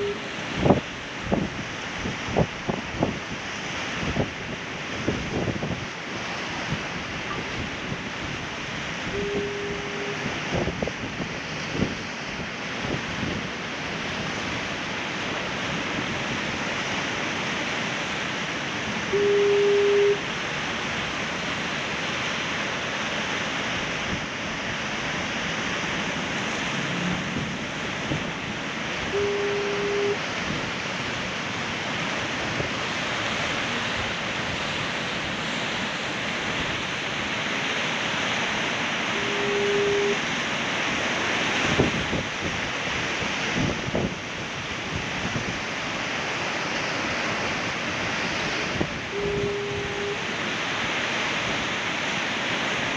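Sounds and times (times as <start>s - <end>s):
foghorn blasts: 0.0s - 0.8s, 9.0s - 10.8s, 18.8s - 20.4s, 28.9s - 30.7s, 37.8s - 40.5s, 48.0s - 51.0s
surf washing against rocks: 0.0s - 52.9s.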